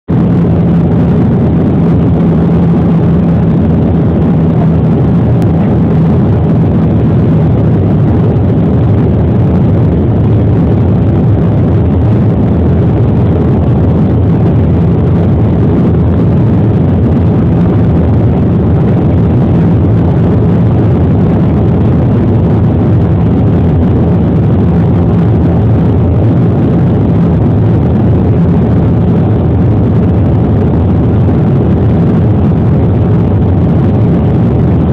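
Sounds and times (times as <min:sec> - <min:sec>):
low hum: 0:00.0 - 0:34.9
jet engines droning: 0:00.1 - 0:34.9
rushing air: 0:00.1 - 0:34.9.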